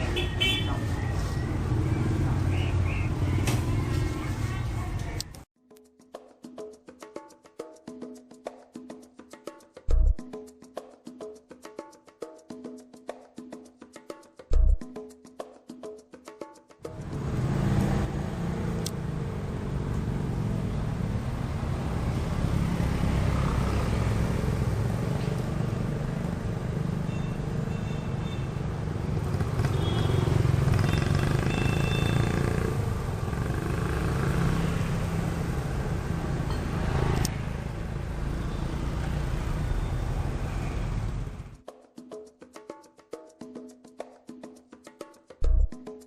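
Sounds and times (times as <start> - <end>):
motorcycle engine running: 16.9 - 38.5.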